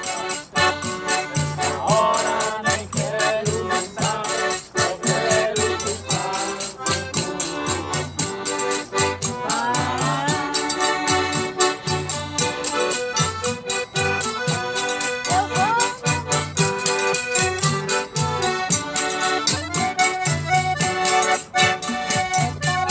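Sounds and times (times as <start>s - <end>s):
accordion playing lively tune: 0.0s - 22.9s
quick steady beat with bass: 0.0s - 22.9s.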